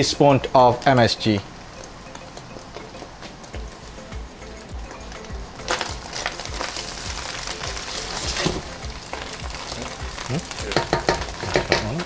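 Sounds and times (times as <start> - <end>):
egg sizzling in oil in a wok: 0.8 - 12.0.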